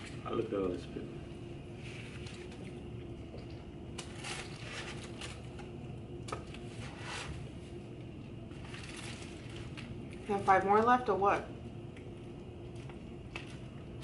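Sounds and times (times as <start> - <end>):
paper wrappers crinkling: 8.5 - 10.7.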